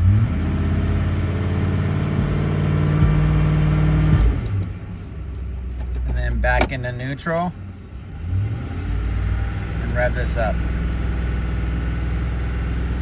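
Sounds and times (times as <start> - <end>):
car engine at full throttle: 0.0 - 13.0.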